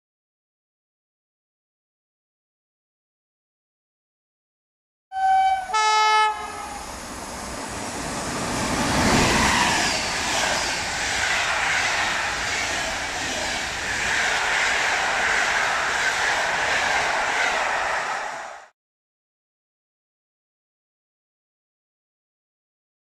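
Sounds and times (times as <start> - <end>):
train horn blasts: 5.1 - 6.9
train wheels rushing on rails: 5.6 - 18.7.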